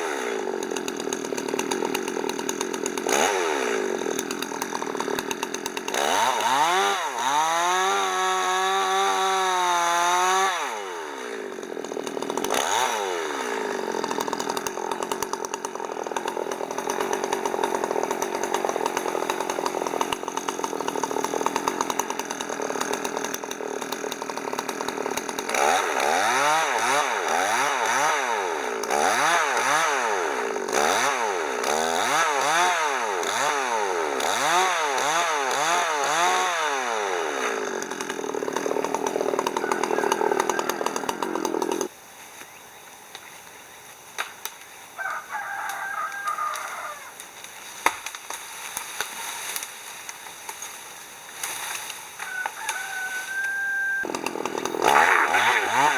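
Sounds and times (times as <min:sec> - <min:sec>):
chainsaw cutting firewood: 0:00.0 - 0:55.9
rooster crowing: 0:39.4 - 0:41.4, 0:45.0 - 0:47.2, 0:52.2 - 0:54.1.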